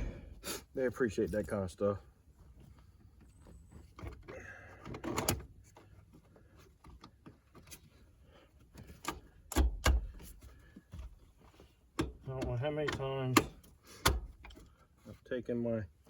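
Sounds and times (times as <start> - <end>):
parts clicking and rattling: 2.6 - 14.8.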